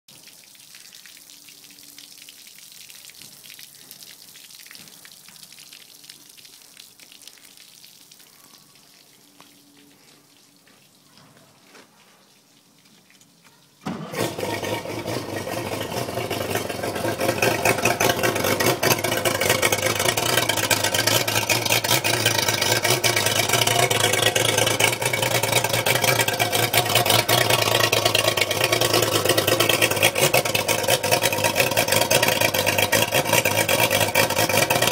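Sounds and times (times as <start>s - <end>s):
outboard motor running: 13.9s - 34.9s.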